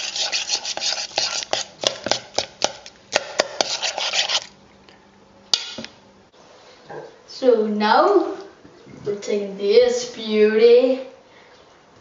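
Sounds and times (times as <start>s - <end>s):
utensil scraping and clicking in bowl: 0.0s - 4.5s.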